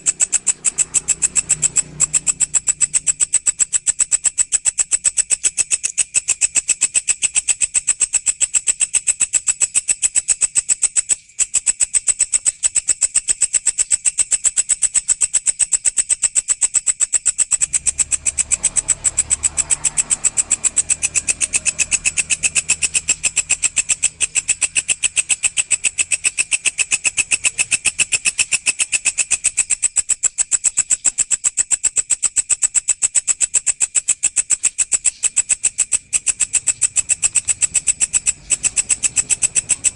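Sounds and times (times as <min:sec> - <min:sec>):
grasshopper calling shrill pulses: 0:00.0 - 0:39.9.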